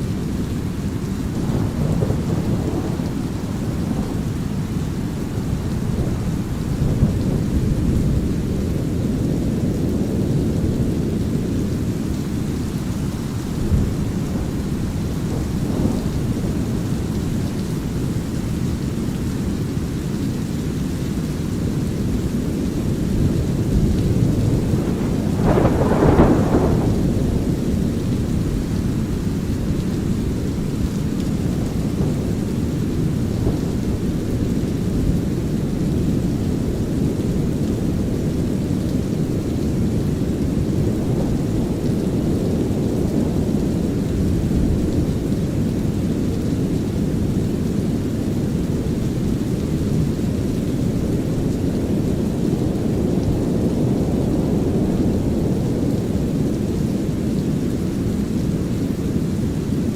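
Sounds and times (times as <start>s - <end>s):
light rain hiss: 0.0s - 59.9s
thunder rolling: 0.2s - 18.6s, 21.8s - 38.4s
deep rumble: 22.3s - 28.8s.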